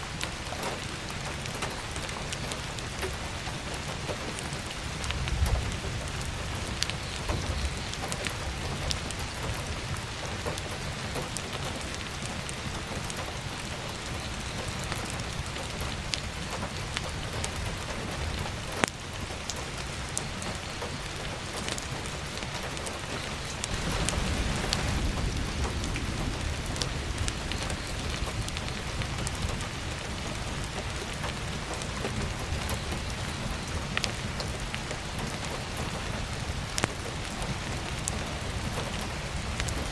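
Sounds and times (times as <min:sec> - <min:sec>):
heavy rain on a roof: 0:00.0 - 0:39.9
burning firewood crackling: 0:00.1 - 0:39.9
thunder rumble: 0:04.8 - 0:13.4, 0:22.6 - 0:39.9.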